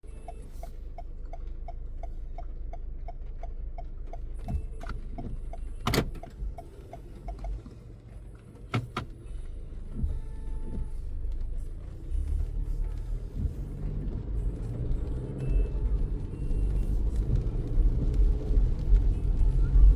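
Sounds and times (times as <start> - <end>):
car engine rumble: 0.0 - 19.9
turn signal ticking: 0.0 - 19.9.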